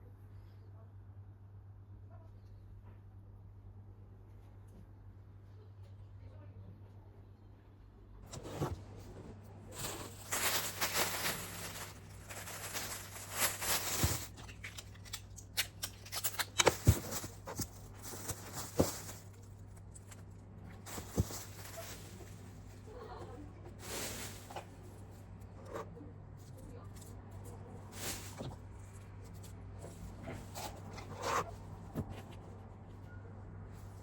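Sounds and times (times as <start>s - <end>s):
faint low hum: 0.0s - 34.0s
rustling and handling: 8.2s - 34.0s.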